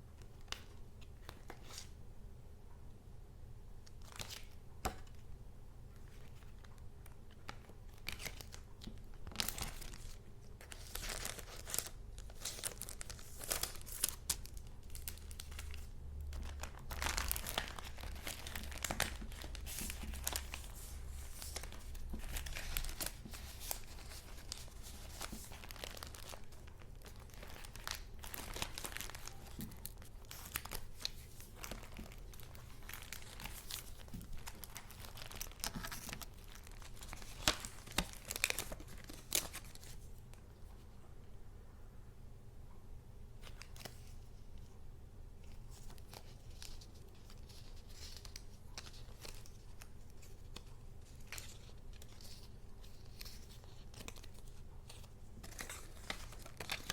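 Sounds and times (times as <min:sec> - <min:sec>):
paper rustling and crinkling: 0:06.0 - 0:40.1, 0:43.4 - 0:44.8, 0:45.4 - 0:56.9.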